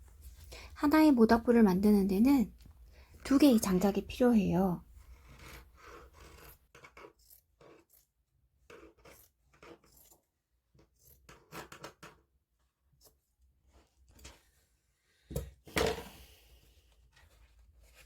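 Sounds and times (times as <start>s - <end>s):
faint rubbing and scraping: 3.0s - 11.8s.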